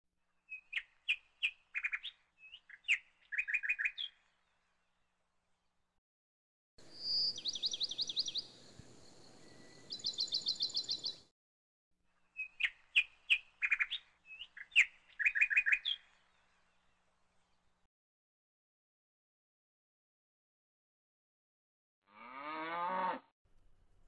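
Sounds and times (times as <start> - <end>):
bird chirps and trills: 0.5 - 4.3, 6.8 - 11.3, 12.2 - 16.8
birds singing: 0.5 - 4.5, 6.8 - 11.3, 12.3 - 16.9.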